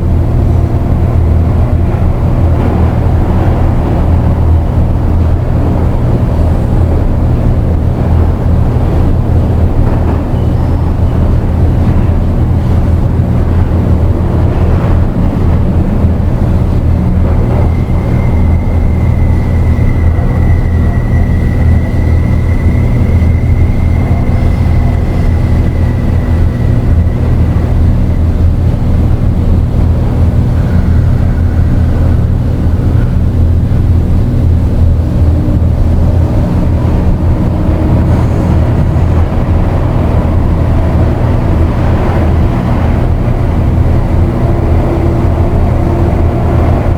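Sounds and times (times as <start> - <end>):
low rumbling drone: 0.0 - 46.9.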